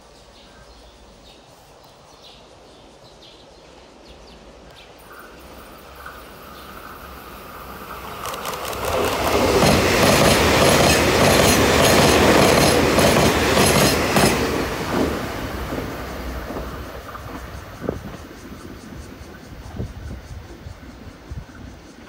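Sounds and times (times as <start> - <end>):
train rushing past: 4.9 - 22.0.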